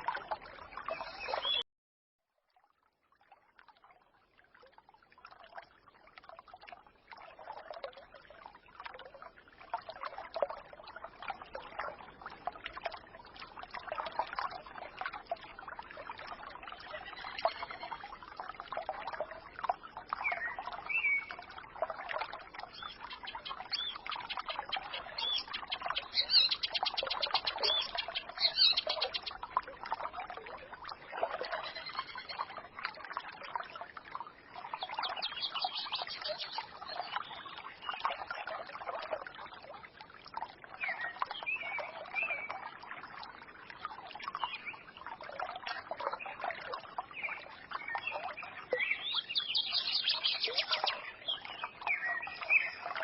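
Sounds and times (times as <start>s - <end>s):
stream gurgling over stones: 0.0s - 1.6s, 2.3s - 53.0s
birds chirping: 0.8s - 1.6s, 22.8s - 29.3s.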